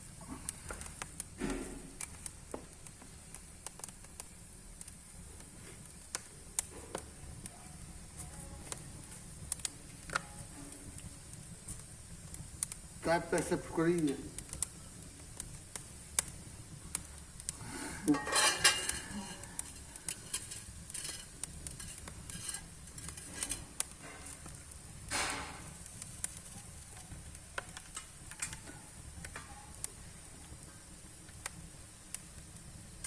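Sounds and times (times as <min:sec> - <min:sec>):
wood fire crackling: 0:00.0 - 0:33.0
logs clattering: 0:18.1 - 0:24.4.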